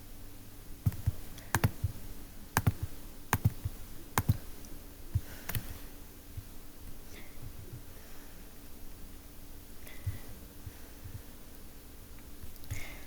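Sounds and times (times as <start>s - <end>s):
faint low hum: 0.0s - 13.0s
computer controls clicking: 0.9s - 2.0s, 2.6s - 4.8s, 5.5s - 5.8s.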